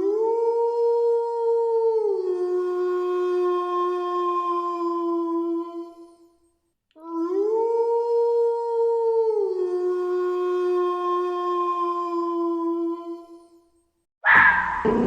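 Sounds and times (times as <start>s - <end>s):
wolf howling: 14.2s - 15.0s.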